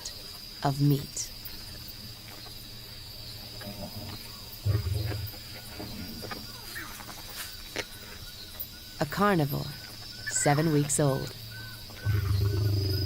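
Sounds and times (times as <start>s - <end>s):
night insects trilling: 0.0s - 13.0s
lion growling low: 3.7s - 6.6s, 12.0s - 13.0s.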